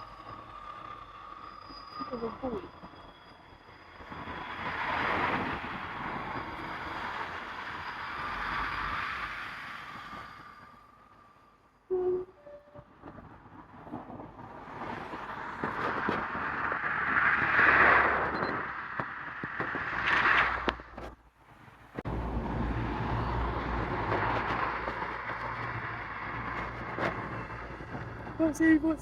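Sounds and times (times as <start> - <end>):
low engine hum: 13.8 - 29.0
vehicle passing by: 22.1 - 28.4.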